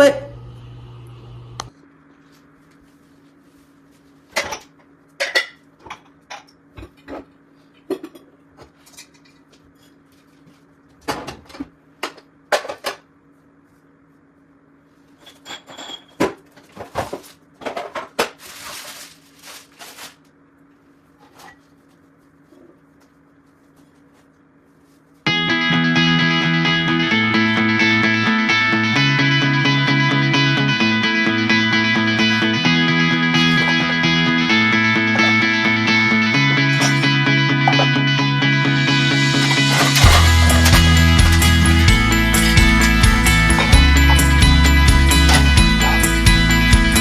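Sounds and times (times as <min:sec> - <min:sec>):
faint steady hum: 0:00.0 - 0:25.3
dishes clinking: 0:04.4 - 0:07.2.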